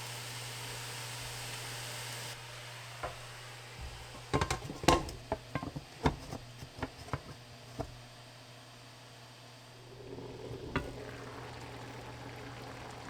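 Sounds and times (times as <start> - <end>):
dishes and utensils clinking: 3.0 - 8.0, 10.0 - 11.7.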